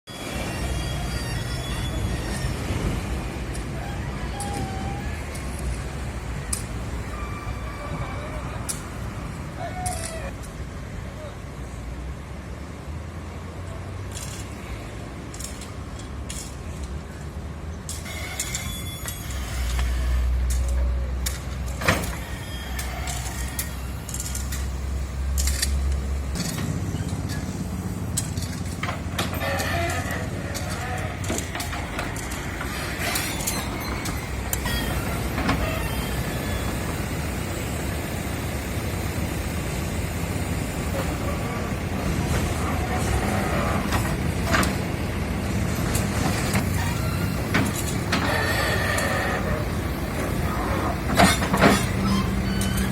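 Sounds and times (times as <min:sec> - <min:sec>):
low engine rumble: 0:19.0 - 0:52.9.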